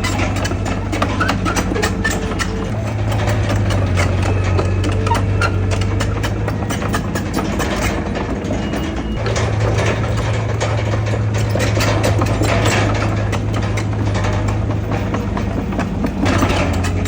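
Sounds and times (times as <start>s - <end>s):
heavy diesel machine running: 0.0s - 17.0s
metallic clanks and rattles: 0.0s - 17.0s.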